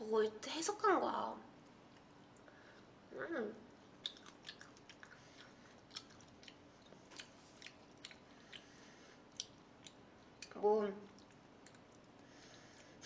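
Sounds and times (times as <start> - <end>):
mouth chewing clicks and smacks: 3.8 - 13.0.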